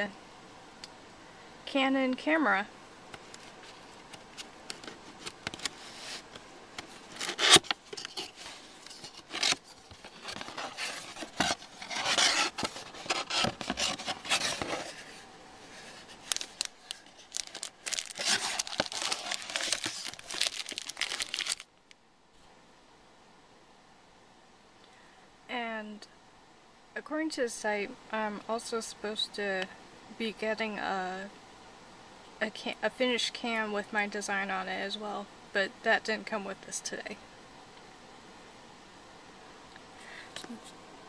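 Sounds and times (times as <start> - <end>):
packaging crinkling and tearing: 4.4 - 15.1, 15.8 - 21.9.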